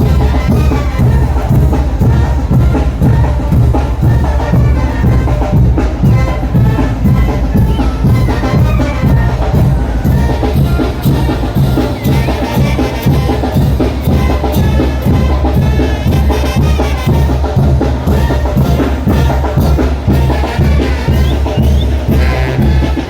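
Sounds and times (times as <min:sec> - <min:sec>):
bass drum and cymbal beat: 0:00.0 - 0:23.0
brass band playing: 0:00.0 - 0:23.0.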